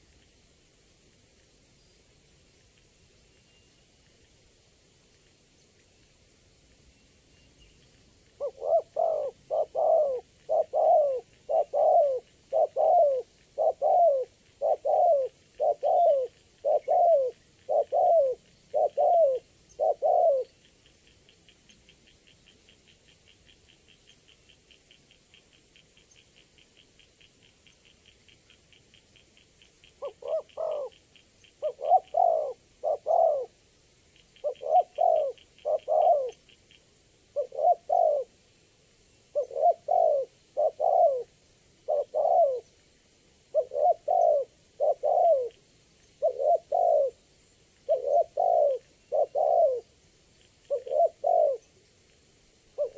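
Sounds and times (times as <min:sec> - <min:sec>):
dove cooing: 0:08.4 - 0:20.6, 0:30.0 - 0:31.0, 0:31.6 - 0:33.6, 0:34.4 - 0:36.4, 0:37.3 - 0:38.4, 0:39.3 - 0:42.7, 0:43.5 - 0:45.6, 0:46.2 - 0:47.2, 0:47.9 - 0:49.9, 0:50.7 - 0:51.7.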